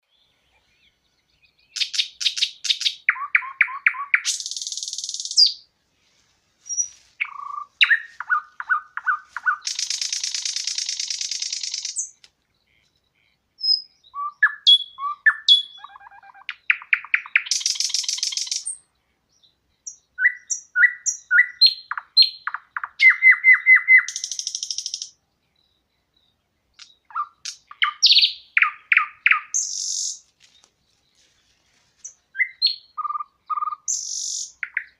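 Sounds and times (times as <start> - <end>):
songbird singing trills: 0.0 - 5.7, 6.6 - 34.9.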